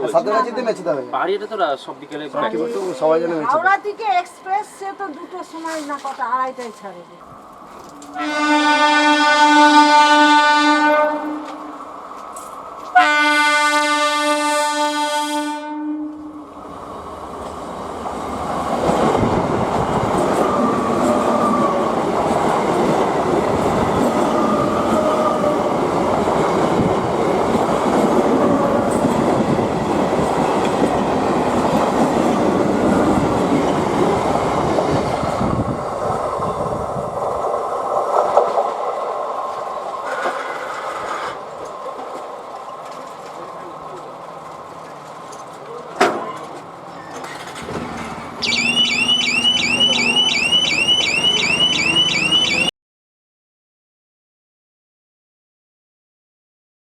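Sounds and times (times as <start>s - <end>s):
train wheels on rail joints: 3.8s - 9.0s, 10.8s - 14.0s, 16.1s - 52.6s
train horn blast: 8.0s - 11.8s, 12.9s - 16.4s.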